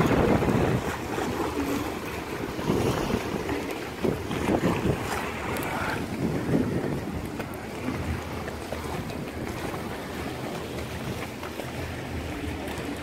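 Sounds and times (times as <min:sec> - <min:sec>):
gusting storm wind: 0:00.0 - 0:09.6
wind buffeting microphone: 0:00.0 - 0:13.0.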